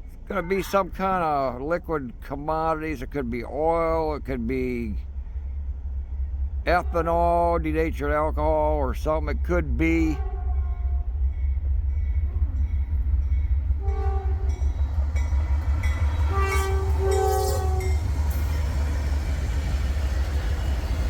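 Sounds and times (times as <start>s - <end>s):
low train rumble: 0.0s - 21.0s
train horn blasts: 10.0s - 11.1s, 13.7s - 21.0s.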